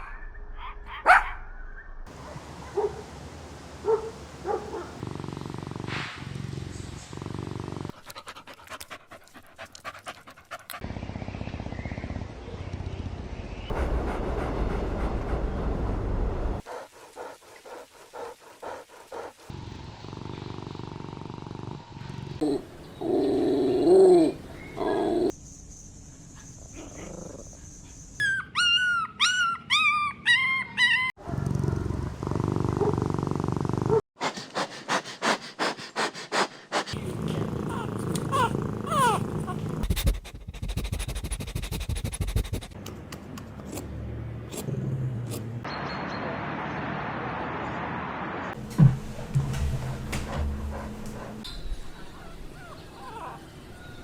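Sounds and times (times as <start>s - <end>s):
puppy panting: 7.9s - 10.8s, 16.7s - 19.4s, 34.2s - 42.8s, 50.1s - 51.4s
puppy whimpering: 28.2s - 31.2s, 37.7s - 40.4s, 51.9s - 53.9s.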